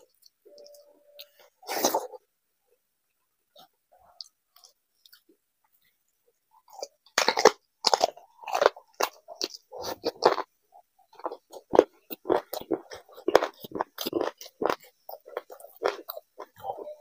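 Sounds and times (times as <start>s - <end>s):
wet crunching bites and chews: 6.7s - 10.5s, 11.2s - 16.8s.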